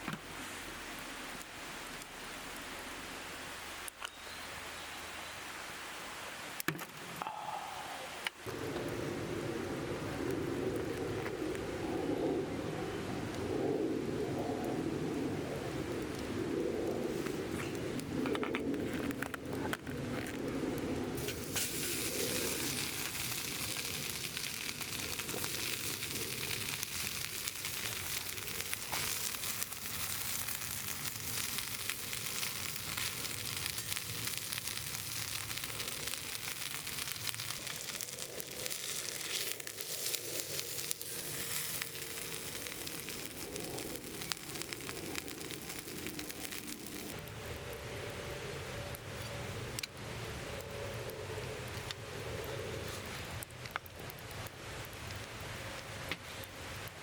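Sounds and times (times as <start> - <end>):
fat crackling in fire: 0.0 - 4.5, 6.5 - 57.0
meat sizzling on a grill: 21.2 - 47.2.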